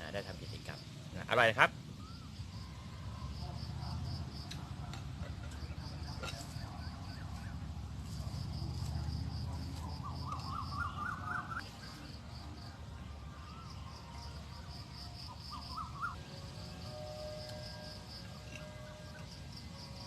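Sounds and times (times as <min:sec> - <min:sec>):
pulsing high-pitched bird call: 0:09.9 - 0:12.0, 0:15.3 - 0:16.9.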